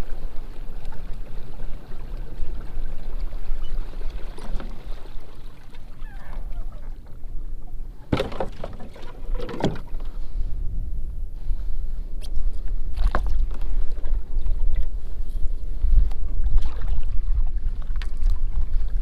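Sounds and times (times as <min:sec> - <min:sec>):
paddle splashes: 0:00.0 - 0:10.5, 0:16.3 - 0:19.0
water rumbling against hull: 0:00.0 - 0:19.0.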